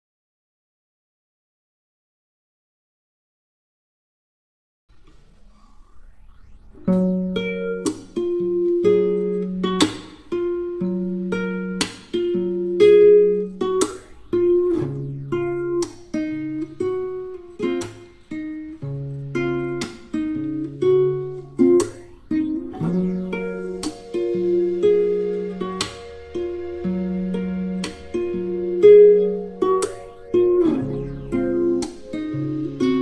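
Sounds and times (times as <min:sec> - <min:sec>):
acoustic guitar music: 0:06.8 - 0:33.0.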